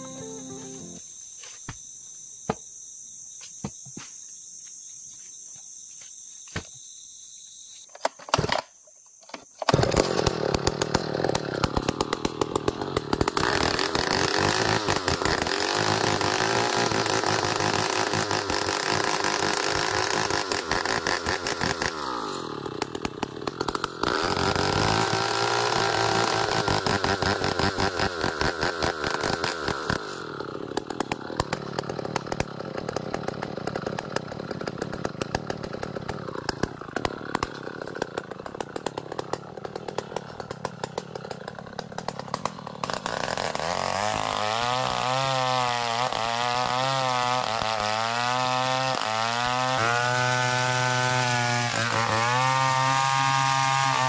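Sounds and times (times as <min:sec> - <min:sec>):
chainsaw sawing wood: 0:00.0 - 0:01.0, 0:09.7 - 0:54.0
high insect chirring: 0:00.0 - 0:07.9.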